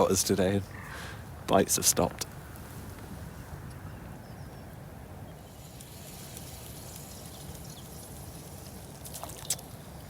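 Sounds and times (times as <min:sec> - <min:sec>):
faint water sounds: 0:05.4 - 0:10.0.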